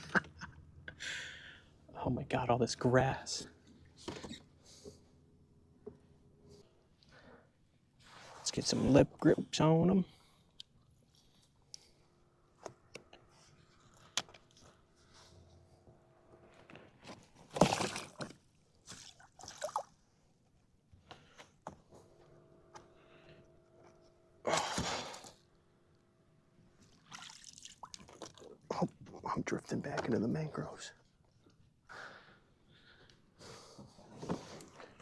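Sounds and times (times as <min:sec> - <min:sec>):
water splashing and sloshing: 0:17.2 - 0:20.1, 0:26.8 - 0:28.6.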